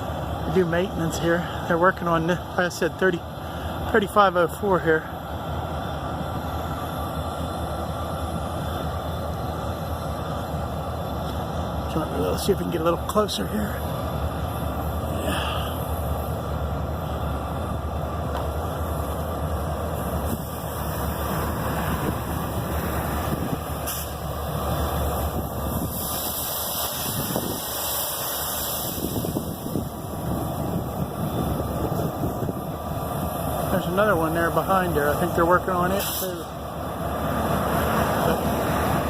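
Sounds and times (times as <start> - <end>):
heavy engine droning: 0.0 - 39.0
rushing noise: 0.0 - 39.0
bright hiss: 23.0 - 30.6.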